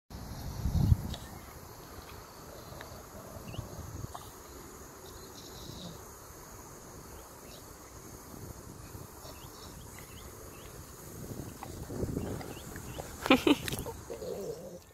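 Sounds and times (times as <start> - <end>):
high insect drone: 0.1 - 14.9.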